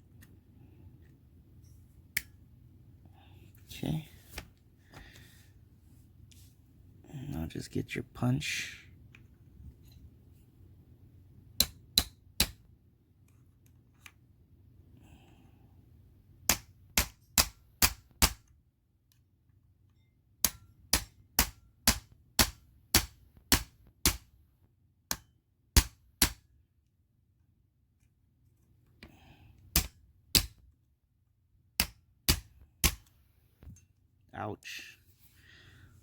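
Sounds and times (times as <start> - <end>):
small hammer tapping metal punch: 11.6 - 12.6, 16.5 - 18.5, 19.9 - 24.2, 25.1 - 26.4, 29.7 - 30.6, 31.8 - 33.1.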